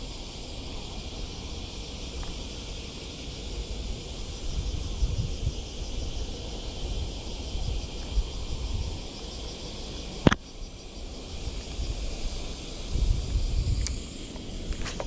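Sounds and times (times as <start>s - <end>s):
insect chorus: 0.0s - 15.0s
wind rumble on microphone: 0.0s - 15.0s
sharp click: 10.2s - 10.4s.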